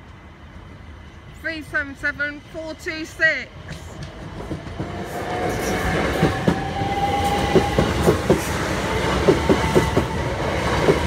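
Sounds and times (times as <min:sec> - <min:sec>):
train rumble: 0:00.0 - 0:11.0
train whine: 0:00.0 - 0:11.0
train wheels clacking over rail joints: 0:03.7 - 0:11.0.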